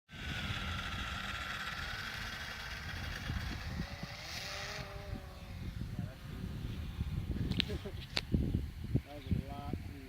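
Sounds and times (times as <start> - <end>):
electric motor and propeller whining: 0.1 - 10.0.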